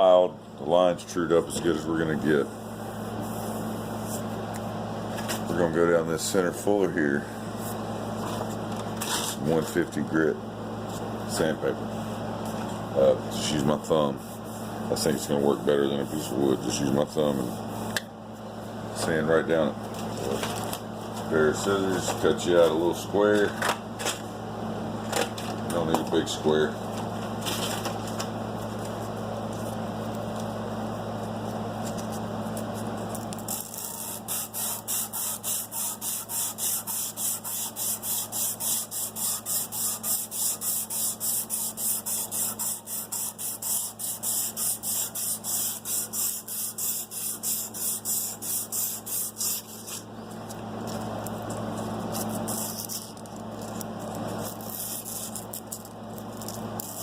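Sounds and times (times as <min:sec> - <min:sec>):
sandpaper rasping on metal blade: 0:33.5 - 0:50.0, 0:52.1 - 0:53.2, 0:54.4 - 0:55.8, 0:56.4 - 0:57.0.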